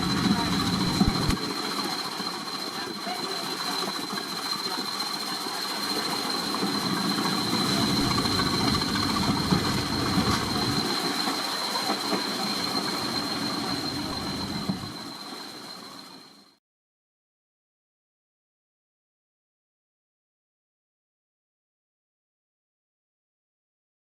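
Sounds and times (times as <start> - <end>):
locomotive hissing: 0.0 - 16.5
thin high whine: 0.0 - 16.6.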